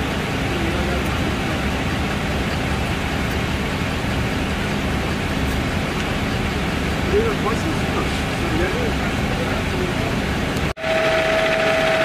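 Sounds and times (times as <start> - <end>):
vehicle engine idling: 0.0 - 10.8.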